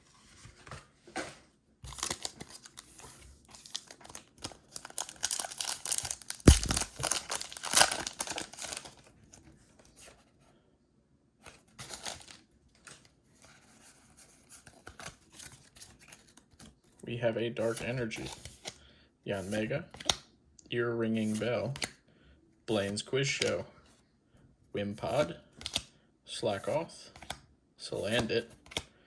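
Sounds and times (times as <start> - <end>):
packaging tearing and crinkling: 1.9 - 2.9, 3.5 - 9.1, 11.8 - 13.0.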